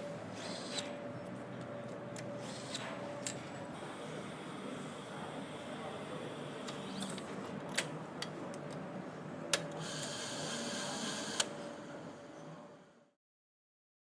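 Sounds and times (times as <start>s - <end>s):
high machine whirr: 0.0s - 1.2s, 2.2s - 7.4s, 9.6s - 13.0s.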